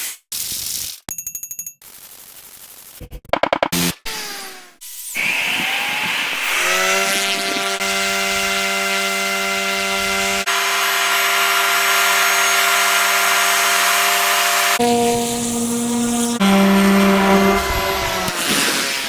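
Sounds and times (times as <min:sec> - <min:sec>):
machine drone: 0:03.8 - 0:19.0.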